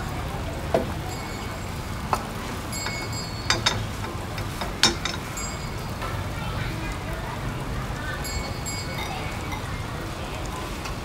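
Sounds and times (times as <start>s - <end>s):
egg frying in oil: 0.2s - 11.0s
utensils clinking: 0.7s - 6.3s, 8.2s - 9.8s.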